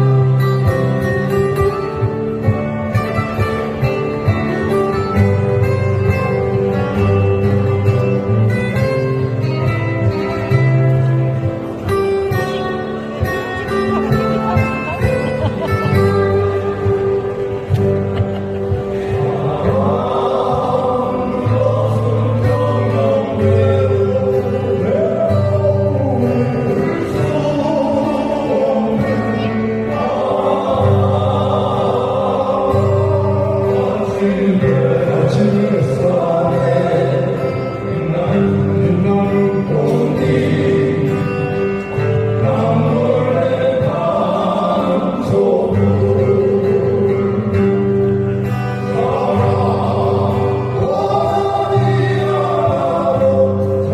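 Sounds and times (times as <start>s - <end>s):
acoustic guitar: 0.0s - 53.9s
person singing: 18.8s - 53.9s.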